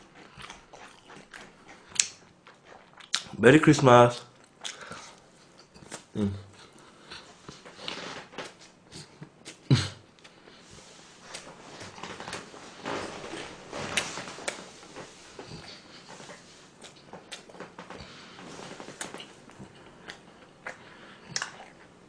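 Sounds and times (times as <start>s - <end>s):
close chewing with wet smacks: 0.0s - 3.4s, 4.2s - 7.6s, 15.4s - 18.1s, 18.8s - 21.9s
person humming briefly: 6.2s - 6.5s.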